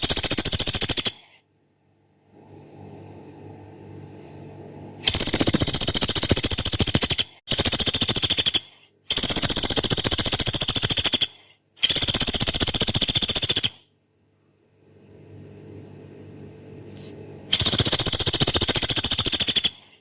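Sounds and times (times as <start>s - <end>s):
woodpecker rattling calls: 0.0s - 1.3s, 5.1s - 13.8s, 17.6s - 19.9s.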